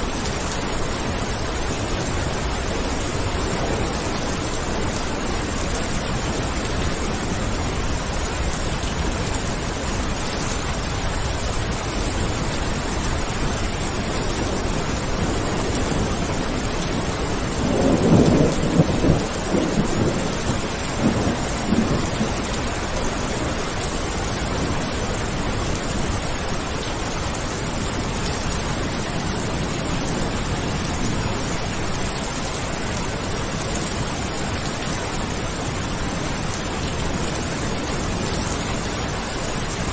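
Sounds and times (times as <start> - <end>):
steady rain: 0.0 - 39.9
thunder rolling: 14.4 - 23.6.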